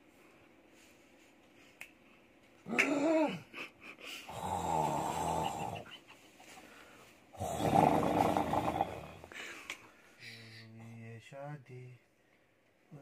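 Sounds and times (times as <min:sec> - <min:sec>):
man snoring loudly: 0:04.3 - 0:05.8, 0:07.4 - 0:09.3.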